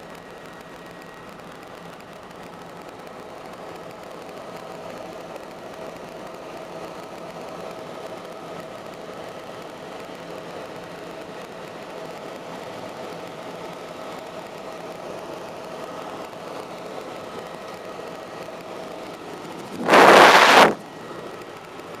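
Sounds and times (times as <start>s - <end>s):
helicopter engine and rotor drone: 0.0s - 22.0s
loud rush of noise: 19.7s - 20.8s.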